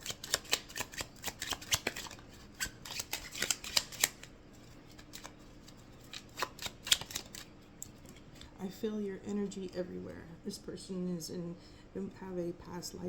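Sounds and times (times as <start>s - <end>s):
cards being shuffled by hand: 0.0s - 8.5s.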